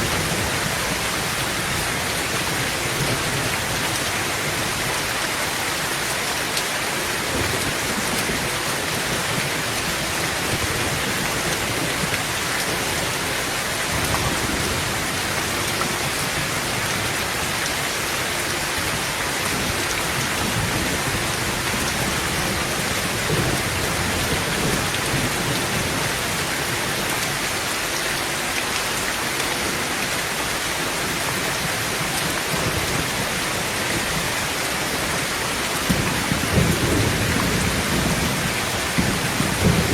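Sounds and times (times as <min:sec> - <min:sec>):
heavy rain on a tin roof: 0:00.0 - 0:39.9
thunder rumbling: 0:32.5 - 0:39.9.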